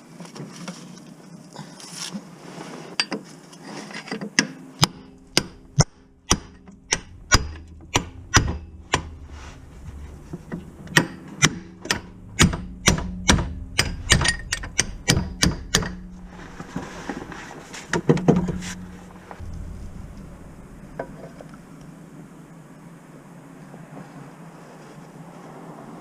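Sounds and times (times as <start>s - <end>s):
hammer on metal: 4.4s - 9.2s, 10.9s - 16.3s.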